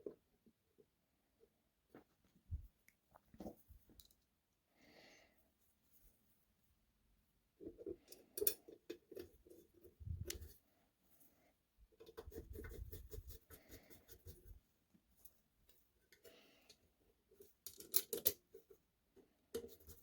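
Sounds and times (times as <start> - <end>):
small parts clicking and scraping: 3.9 - 4.3, 7.6 - 10.6, 16.1 - 18.8.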